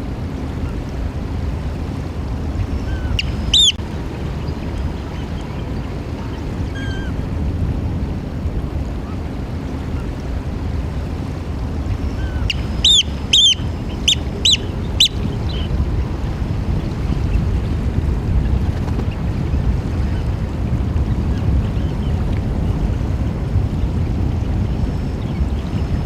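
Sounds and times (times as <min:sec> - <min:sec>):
low background rumble: 0:00.0 - 0:26.0
oystercatcher piping calls: 0:02.6 - 0:03.8, 0:06.7 - 0:07.1, 0:12.0 - 0:15.7.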